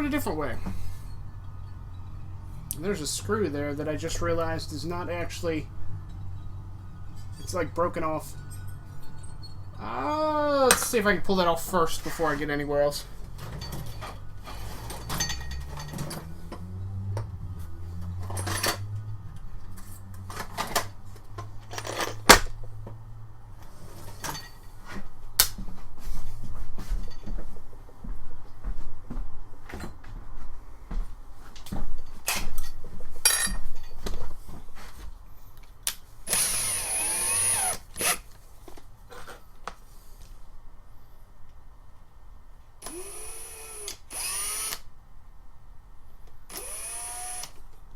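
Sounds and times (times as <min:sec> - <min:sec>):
electric drill whine: 0:36.3 - 0:38.2, 0:42.8 - 0:44.9, 0:46.5 - 0:47.6.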